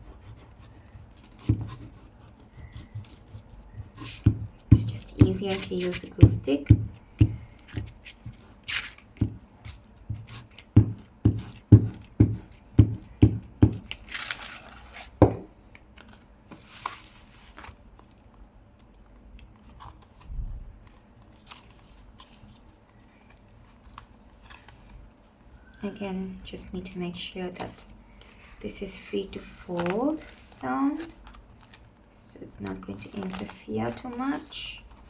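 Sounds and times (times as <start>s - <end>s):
paper rustling: 0.1s - 6.3s, 13.9s - 15.2s, 16.0s - 18.3s, 18.9s - 25.9s, 29.4s - 32.0s, 32.8s - 35.0s.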